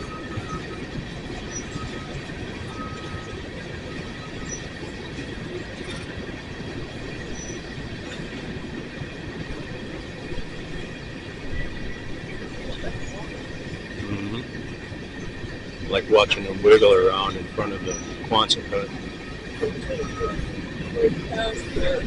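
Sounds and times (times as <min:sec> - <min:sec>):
wheel squeals: 0:00.0 - 0:06.2, 0:06.8 - 0:08.5, 0:14.5 - 0:22.0
train wheels rumbling on rails: 0:00.0 - 0:22.0.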